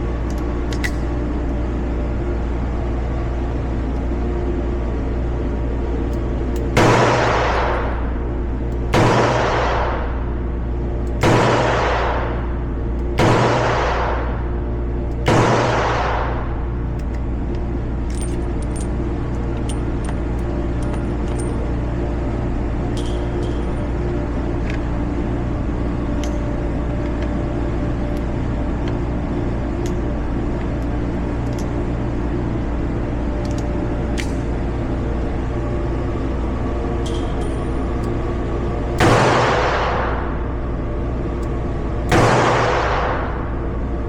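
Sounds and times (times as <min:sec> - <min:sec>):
low mechanical hum: 0:00.0 - 0:44.0
small clicks and clinks: 0:00.3 - 0:01.3, 0:17.0 - 0:21.7, 0:23.0 - 0:23.8, 0:31.4 - 0:31.8, 0:33.4 - 0:34.5, 0:37.0 - 0:38.2.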